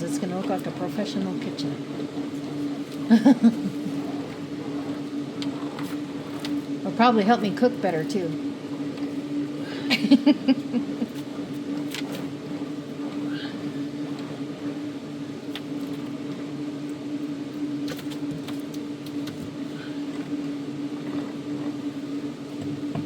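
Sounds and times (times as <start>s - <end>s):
electric fan hum: 0.0s - 23.0s.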